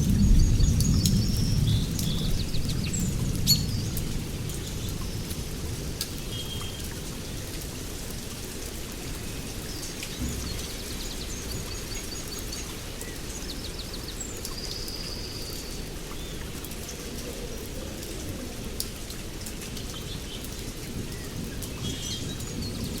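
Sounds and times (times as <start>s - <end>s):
steady rain: 0.0s - 23.0s
songbirds calling: 9.0s - 17.7s.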